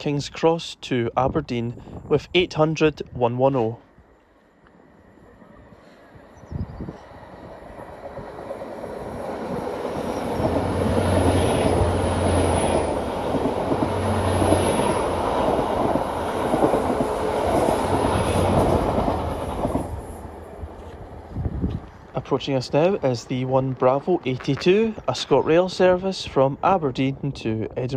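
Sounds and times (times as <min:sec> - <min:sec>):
wheel and rail noise: 0:03.7 - 0:25.9
diesel train passing at speed: 0:03.9 - 0:24.3.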